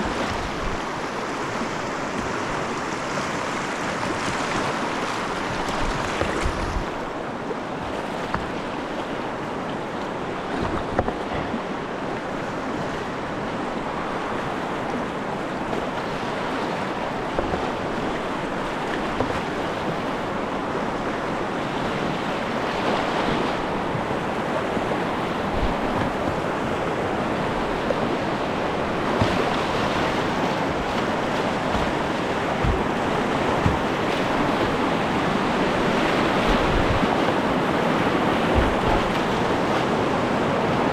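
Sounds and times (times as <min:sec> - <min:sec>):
river rapids rushing: 0:00.0 - 0:40.9
short low thumps: 0:30.7 - 0:34.6.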